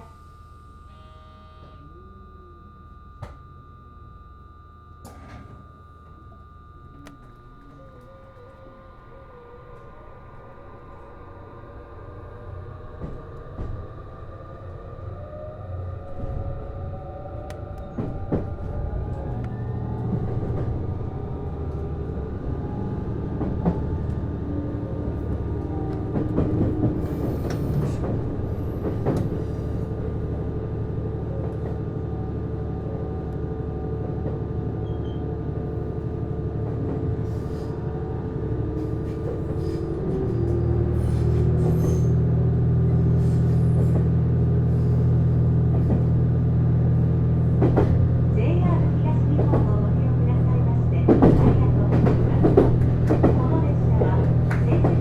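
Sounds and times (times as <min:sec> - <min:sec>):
diesel engine low rumble: 0:00.0 - 0:55.0
traction inverter whine: 0:00.0 - 0:55.0.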